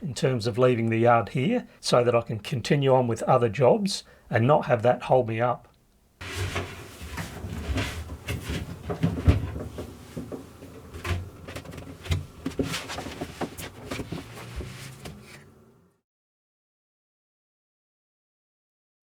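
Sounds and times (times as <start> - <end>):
wooden cabinet panels knocking: 6.2 - 15.2.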